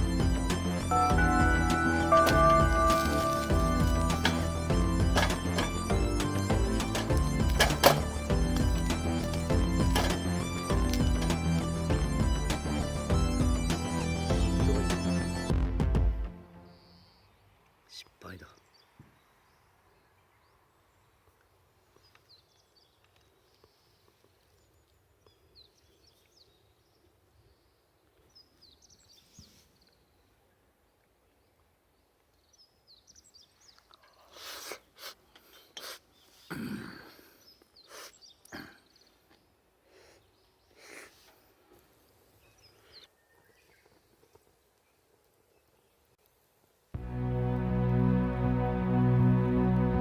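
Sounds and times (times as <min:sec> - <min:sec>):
sharp crackles and rustling: 0:21.3 - 0:25.4, 0:43.3 - 0:46.4.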